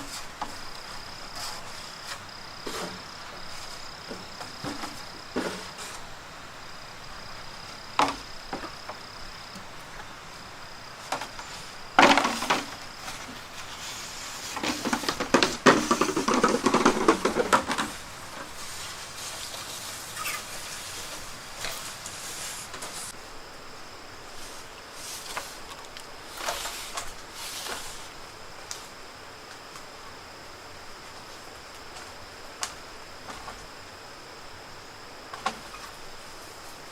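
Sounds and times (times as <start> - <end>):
scraping: 11.1 - 23.2
knocks and clattering: 14.5 - 18.5.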